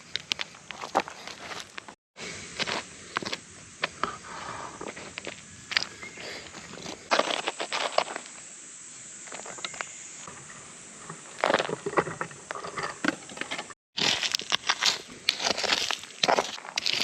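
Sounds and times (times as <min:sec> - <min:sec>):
rustling and crunching handling noise: 0:00.0 - 0:02.0, 0:11.1 - 0:17.0.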